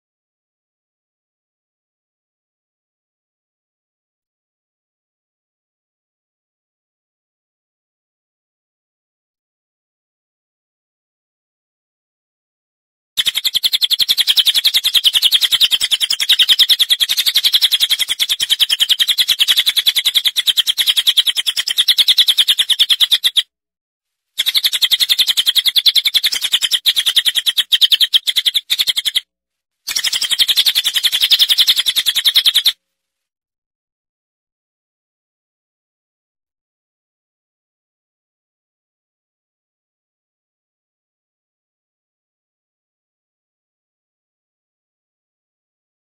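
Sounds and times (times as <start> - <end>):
bird chirping rapidly: 13.2 - 23.4, 24.4 - 29.2, 29.9 - 32.8.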